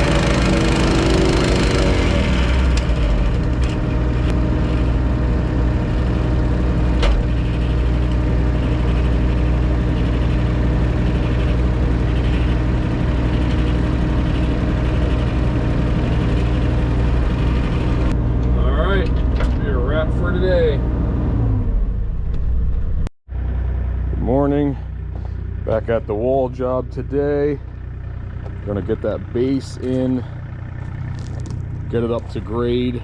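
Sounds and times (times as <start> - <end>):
engine droning steadily: 0.0 - 33.0.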